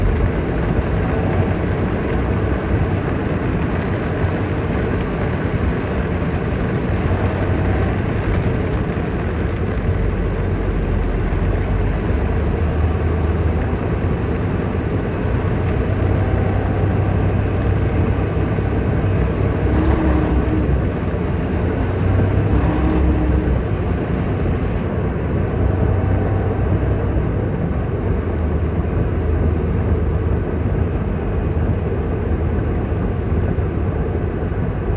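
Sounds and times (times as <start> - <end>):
heavy rain falling: 0.0 - 13.9
deep rumble: 0.0 - 34.9.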